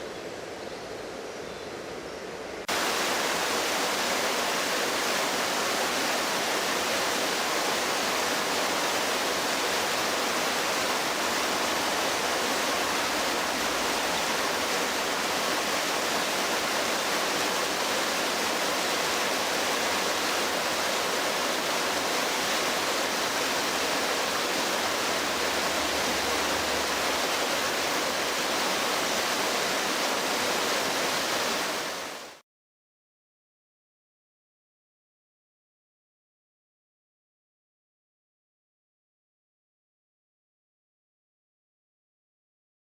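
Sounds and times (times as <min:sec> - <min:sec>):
floodwater rushing: 0:02.7 - 0:32.4.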